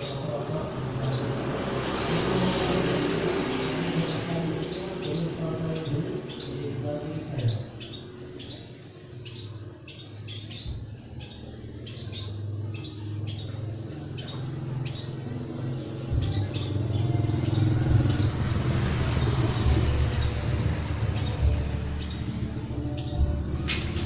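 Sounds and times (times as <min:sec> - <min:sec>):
small birds chirping: 0:00.0 - 0:24.0
low engine rumble: 0:10.6 - 0:24.0.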